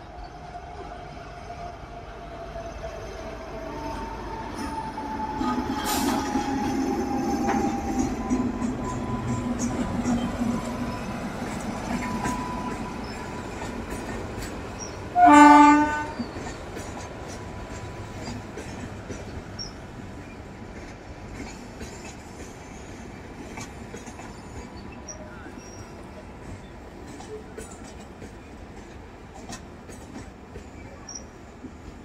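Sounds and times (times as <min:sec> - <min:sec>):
train running on the track: 0:00.0 - 0:32.0
train horn blast: 0:15.2 - 0:16.2.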